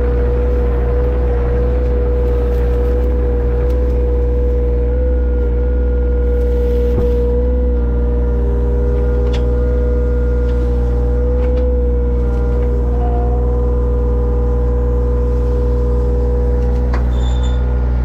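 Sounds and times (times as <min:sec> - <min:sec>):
heavy machinery engine running: 0:00.0 - 0:18.0.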